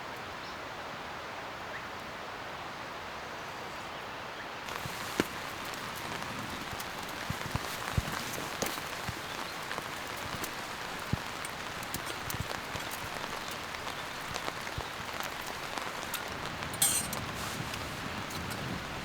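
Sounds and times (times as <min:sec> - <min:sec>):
light rain hiss: 0:04.6 - 0:19.0.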